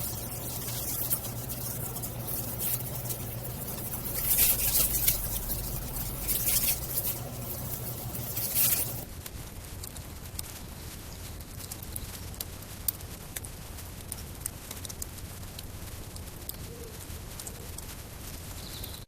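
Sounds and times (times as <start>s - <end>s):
campfire crackling and popping: 0.0s - 9.1s.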